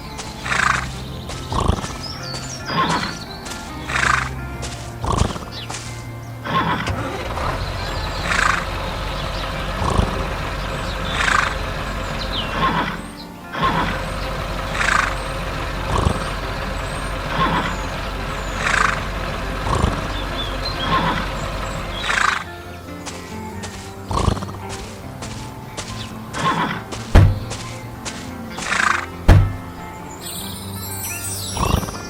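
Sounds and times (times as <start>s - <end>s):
low machine drone: 6.8s - 22.2s.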